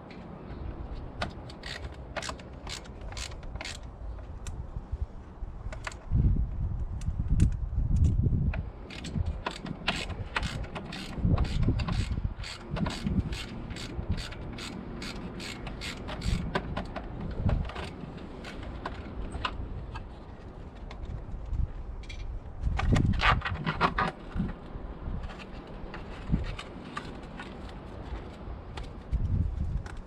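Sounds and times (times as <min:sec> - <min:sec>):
ratchet wrench clicking: 0:01.5 - 0:03.8, 0:08.9 - 0:16.6.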